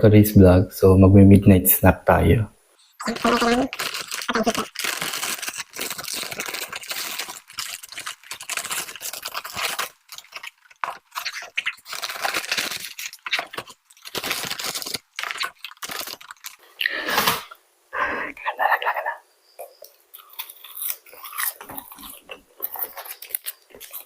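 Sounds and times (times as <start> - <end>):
paper packaging crinkling: 3.0 - 17.5, 20.2 - 24.0.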